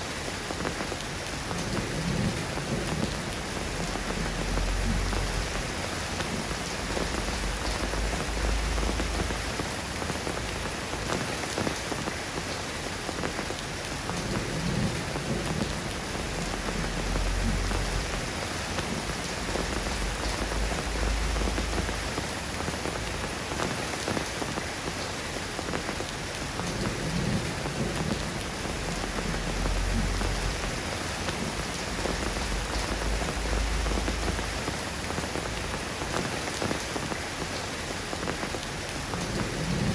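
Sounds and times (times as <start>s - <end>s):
soft rain pattering: 0.0s - 39.9s
low rumble: 16.2s - 22.2s, 28.6s - 36.0s.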